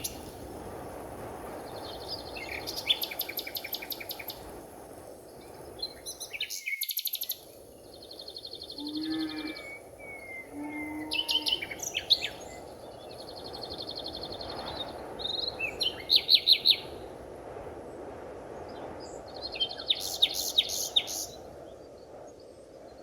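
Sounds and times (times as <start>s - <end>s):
forest background hiss: 0.0s - 23.0s
birds trilling: 8.2s - 12.8s.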